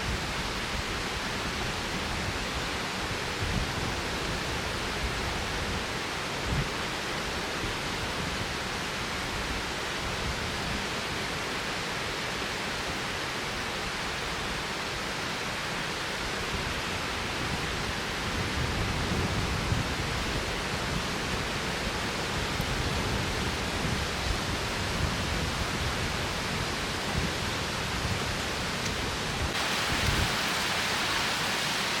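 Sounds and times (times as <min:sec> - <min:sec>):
strong wind through woods: 0:00.0 - 0:32.0
wind buffeting microphone: 0:17.4 - 0:32.0.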